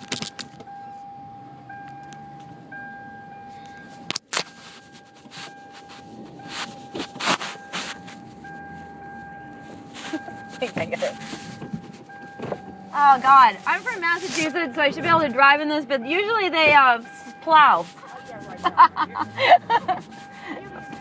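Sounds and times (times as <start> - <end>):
car engine running: 0.0 - 21.0
short knocks and scrapes: 9.7 - 14.6.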